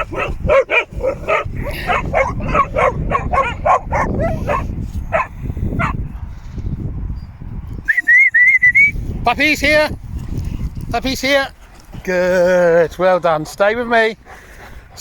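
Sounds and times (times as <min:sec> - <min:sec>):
puppies yipping and barking: 0:00.0 - 0:06.0.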